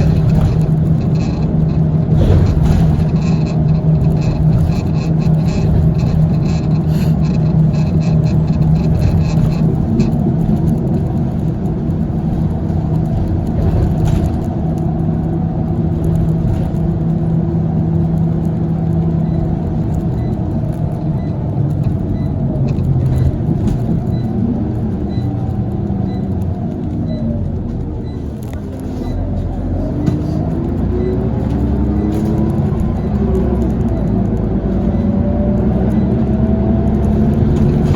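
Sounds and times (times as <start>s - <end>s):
faint regular ticking: 0.0s - 28.6s
bus engine running: 0.0s - 37.9s.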